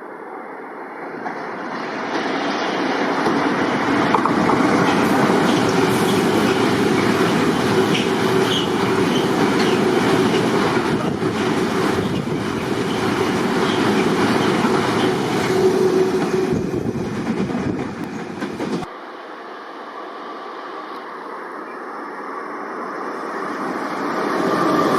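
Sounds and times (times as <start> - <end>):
train wheels clacking over rail joints: 3.2 - 18.9.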